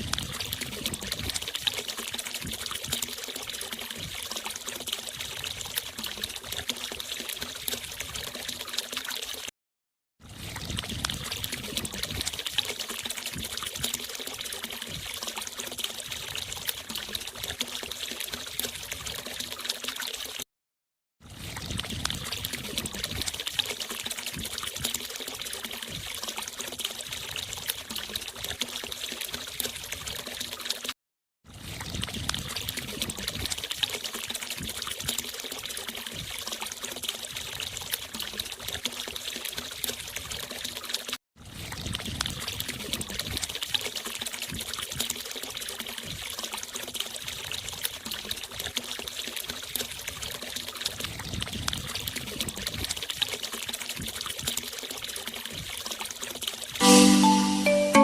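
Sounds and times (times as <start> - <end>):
water pouring and splashing: 0.0 - 9.5, 10.2 - 20.5, 21.2 - 57.4.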